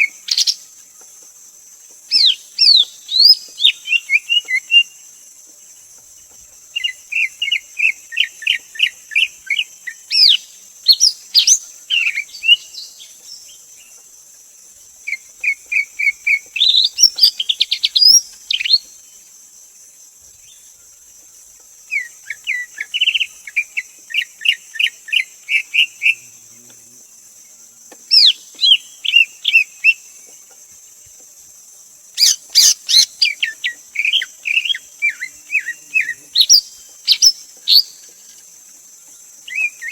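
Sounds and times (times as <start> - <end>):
bird singing whistled notes: 0.0 - 0.6, 2.1 - 5.0, 6.8 - 13.6, 15.1 - 19.0, 28.1 - 30.0, 32.2 - 38.4, 39.4 - 39.9.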